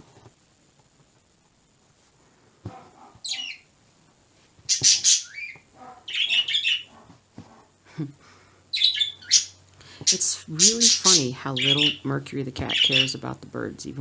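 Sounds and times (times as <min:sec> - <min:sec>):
birds squawking: 0:03.2 - 0:03.7, 0:04.7 - 0:07.0, 0:08.7 - 0:13.2.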